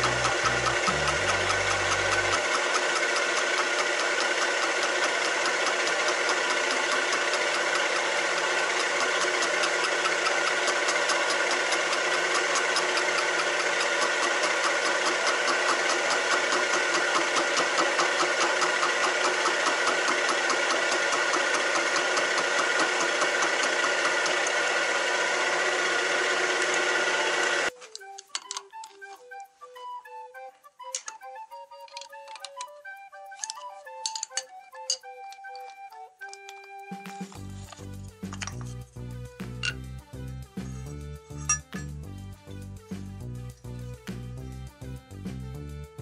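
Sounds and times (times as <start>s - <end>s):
cutter chattering on metal: 0.0s - 27.7s
milling machine whine: 0.0s - 29.3s, 31.8s - 42.0s.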